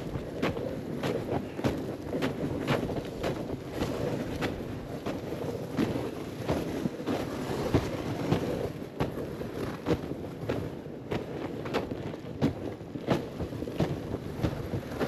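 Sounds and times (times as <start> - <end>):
footsteps crunching through snow: 0.0 - 9.2
sled dragged across snow: 0.0 - 15.0.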